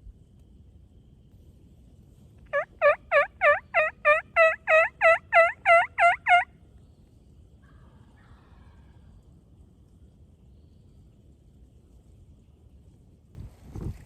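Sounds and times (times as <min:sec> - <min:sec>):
turkey yelps: 0:02.5 - 0:06.5.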